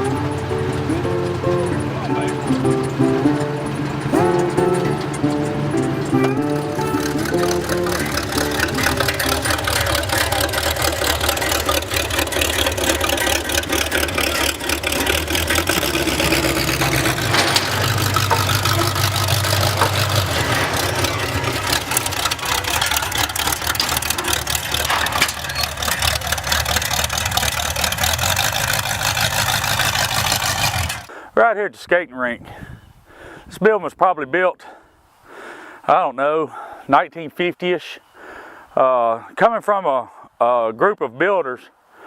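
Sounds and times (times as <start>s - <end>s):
truck engine running loudly: 0.0s - 31.1s.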